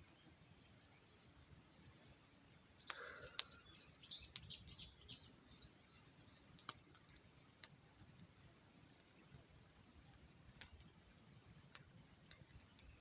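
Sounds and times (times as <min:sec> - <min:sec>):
small bird chirping: 0:02.2 - 0:06.8.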